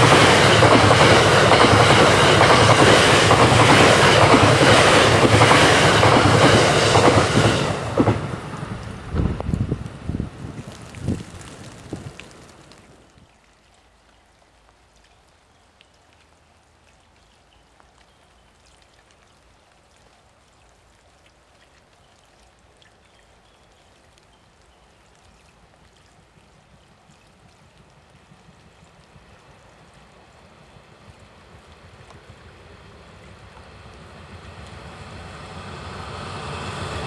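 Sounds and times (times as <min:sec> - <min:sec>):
electric train rumbling: 0:00.0 - 0:12.7, 0:27.9 - 0:37.0
rain falling: 0:00.0 - 0:36.2.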